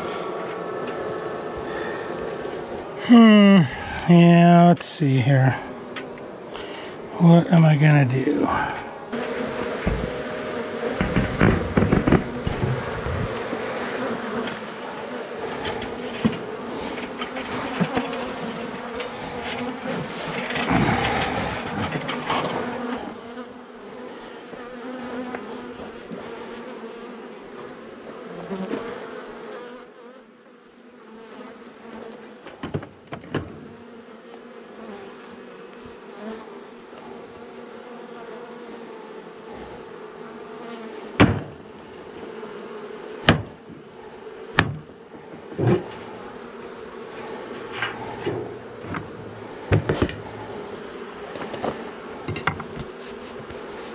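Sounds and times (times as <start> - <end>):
bees buzzing: 0.0 - 53.9
sharp knocks: 9.1 - 13.6, 32.5 - 33.7, 41.2 - 41.7, 43.2 - 43.8, 44.6 - 46.1, 47.2 - 50.3, 51.3 - 53.0.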